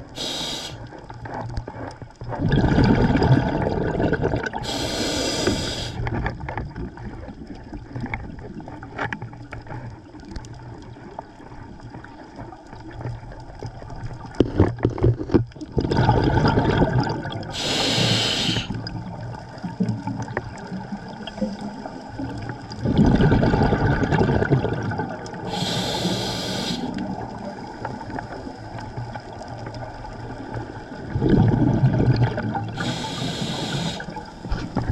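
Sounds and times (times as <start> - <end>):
regulator inhalation hiss: 0.0 - 0.8, 4.6 - 6.0, 17.6 - 18.8, 25.5 - 27.0, 32.8 - 34.5
low underwater crackle: 0.0 - 34.9
exhaled bubbles rushing: 2.3 - 6.0, 15.6 - 17.7, 18.5 - 25.9, 30.9 - 34.9.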